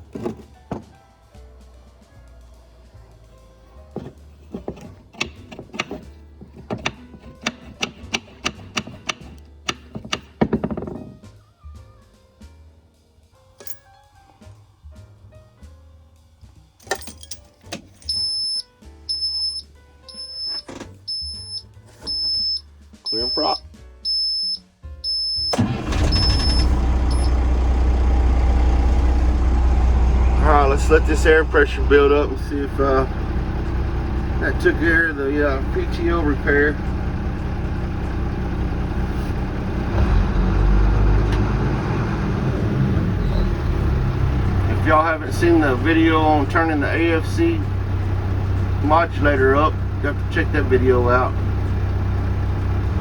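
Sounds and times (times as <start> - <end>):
high dashboard warning beeps: 18.1 - 27.4
diesel truck engine idling: 18.1 - 53.0.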